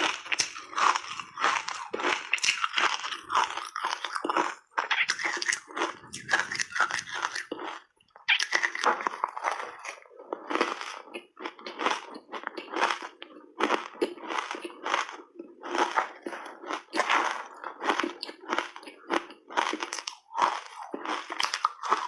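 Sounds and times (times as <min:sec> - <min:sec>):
person crunching ice: 0:00.0 - 0:22.0.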